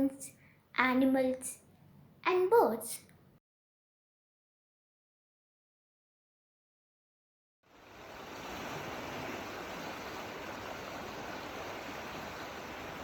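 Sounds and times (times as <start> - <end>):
water rushing: 7.7 - 13.0.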